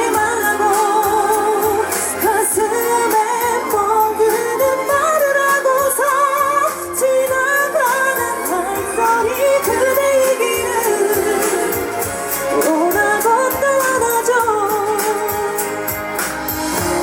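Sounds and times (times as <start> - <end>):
woman singing a ballad: 0.0 - 16.8
backing track: 0.0 - 17.0.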